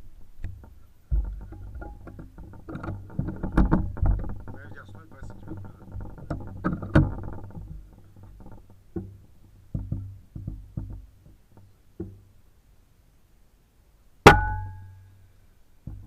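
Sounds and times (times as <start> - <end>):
soft dull knocks: 0.0 - 12.4.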